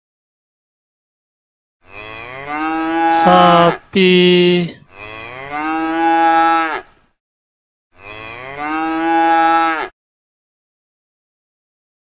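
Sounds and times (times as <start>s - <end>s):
cow mooing: 1.8s - 3.8s, 4.8s - 7.0s, 8.0s - 10.0s.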